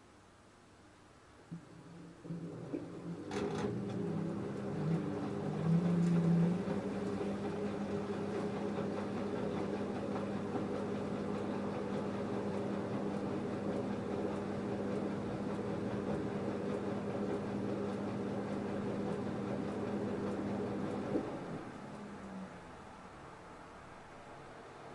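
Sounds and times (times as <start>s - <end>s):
washing machine motor hum: 1.5s - 24.9s
load tumbling in washing machine: 1.9s - 12.3s.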